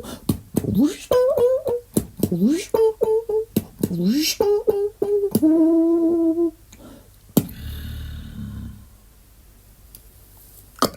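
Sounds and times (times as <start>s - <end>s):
vocal kick with bass rumble: 7.4s - 8.9s.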